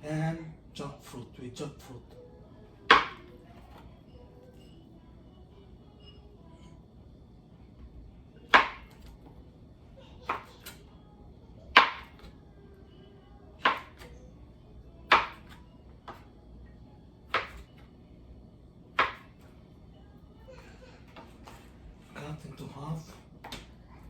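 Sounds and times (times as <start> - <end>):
knife chopping on cutting board: 11.8 - 12.3, 13.6 - 14.1, 15.1 - 16.2, 17.3 - 17.7, 19.0 - 19.3.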